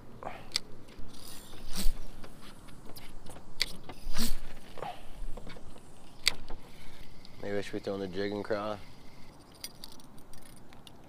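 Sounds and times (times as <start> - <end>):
sharp reel clicks: 0.5 - 4.5
fishing reel ticking: 1.0 - 2.2, 5.8 - 10.6.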